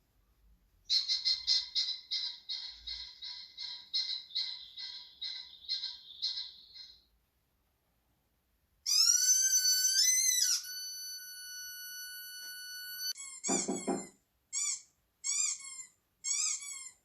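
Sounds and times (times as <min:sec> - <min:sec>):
recorded whistle-like tone: 0:08.9 - 0:14.0.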